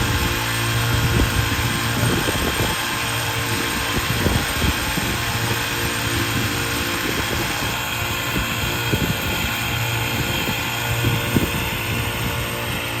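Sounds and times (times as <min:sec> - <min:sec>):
machinery engine humming: 0:00.0 - 0:13.0.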